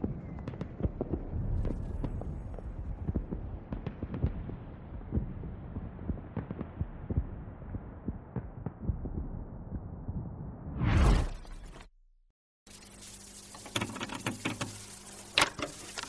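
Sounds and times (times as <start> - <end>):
muffled low thumps: 1.3 - 10.8.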